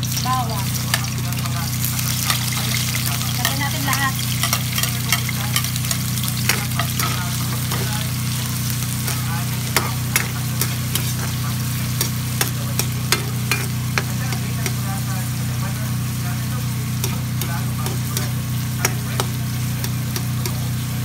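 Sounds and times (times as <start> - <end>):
onion sizzling in hot oil: 0.0 - 21.0
steady low hum: 0.0 - 21.0
metal ladle scraping pan: 9.0 - 14.2.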